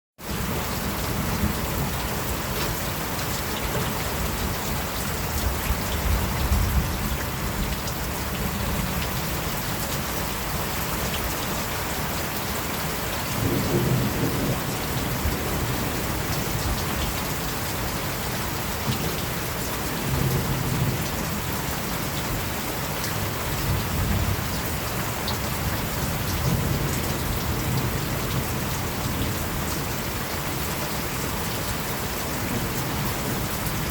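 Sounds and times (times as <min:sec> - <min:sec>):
steady rain falling: 0:00.2 - 0:33.9
distant thunder rumbles: 0:13.3 - 0:17.2.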